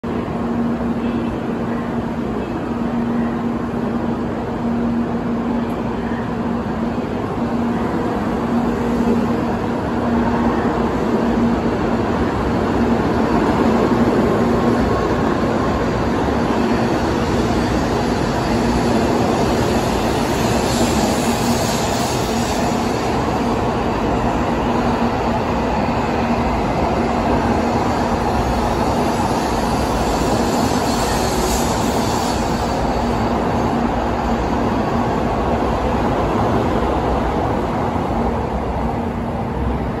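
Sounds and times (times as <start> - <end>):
train rushing past: 0.0 - 40.0
hiss: 17.3 - 23.7, 28.0 - 34.6.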